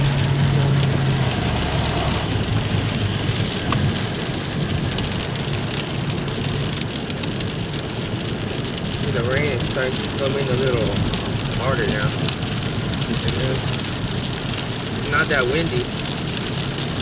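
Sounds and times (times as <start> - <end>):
low vehicle hum: 0.0 - 17.0
rain falling: 0.0 - 17.0.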